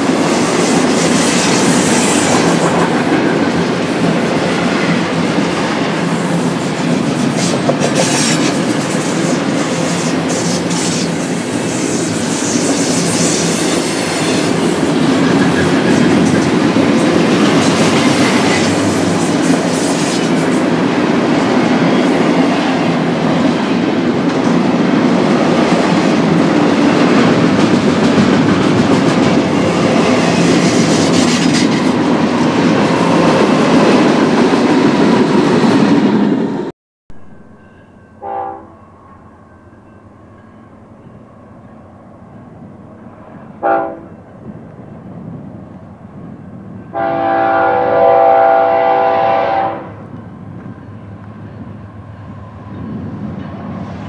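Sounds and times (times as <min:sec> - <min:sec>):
freight cars rolling on rails: 0:00.0 - 0:36.6
high wheel squeal: 0:07.4 - 0:20.6.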